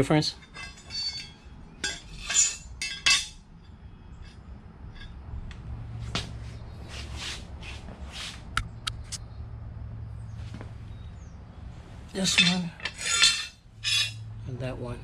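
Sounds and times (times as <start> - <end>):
mower blades clinking metallically: 0.0 - 5.2, 12.1 - 14.7.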